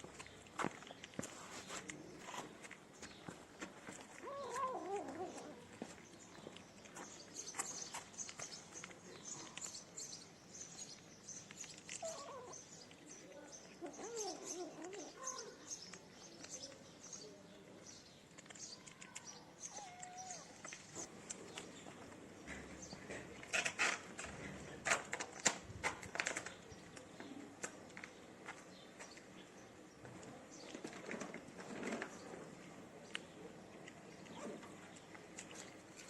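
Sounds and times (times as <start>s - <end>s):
cat meowing: 19.7s - 20.6s.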